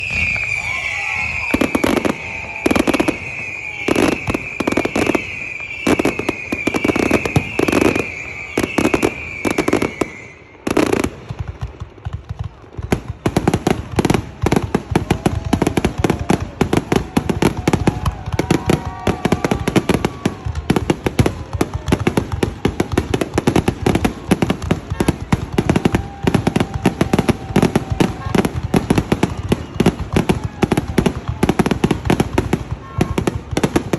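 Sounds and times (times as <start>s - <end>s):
high wavering whistle: 0.0s - 10.6s
fireworks bursting with bangs: 0.0s - 33.9s
rapid bangs and crackles: 10.7s - 33.9s.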